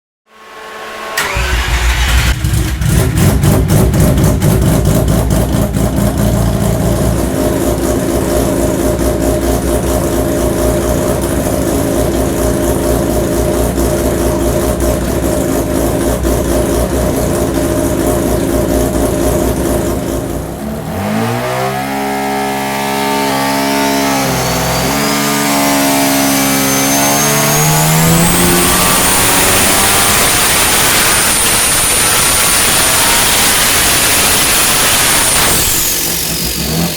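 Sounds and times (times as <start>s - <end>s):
rotary engine revving: 1.2s - 36.9s
high whine rising in pitch: 22.7s - 36.9s.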